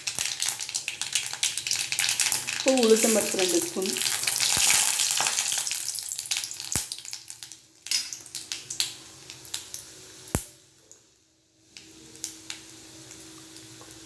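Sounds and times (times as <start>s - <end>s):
seeds sizzling in hot oil: 0.0s - 14.0s.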